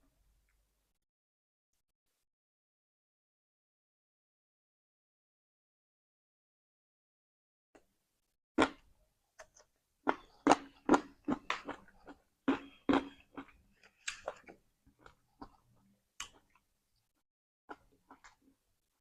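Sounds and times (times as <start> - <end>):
mouth chewing crispy fish: 9.5 - 15.6.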